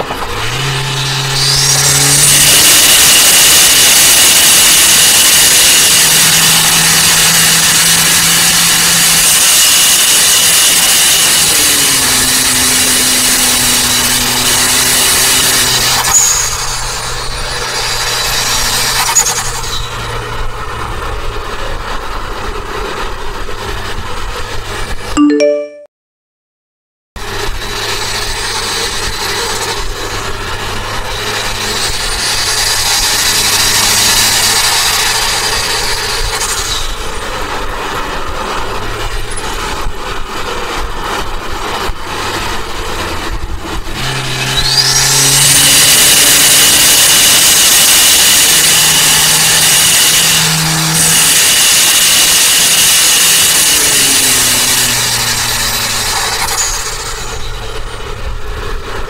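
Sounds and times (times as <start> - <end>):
car engine pulling under load: 0.0 - 25.2, 27.2 - 59.0
turbo whistle: 0.6 - 6.7.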